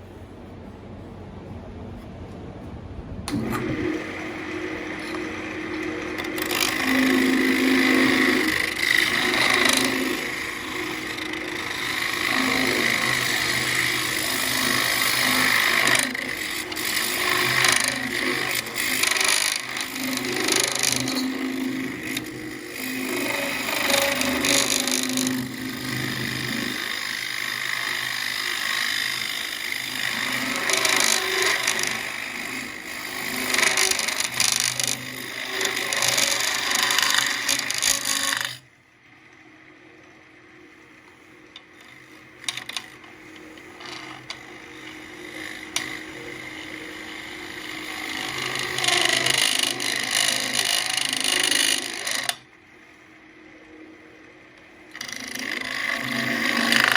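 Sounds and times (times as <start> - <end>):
low motor hum: 0.0 - 56.9
hand tool hissing on spinning wood: 4.3 - 38.2.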